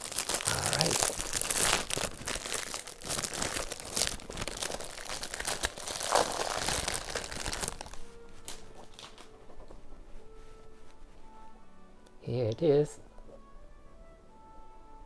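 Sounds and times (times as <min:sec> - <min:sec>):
cardboard packaging tearing and crinkling: 0:00.0 - 0:09.3.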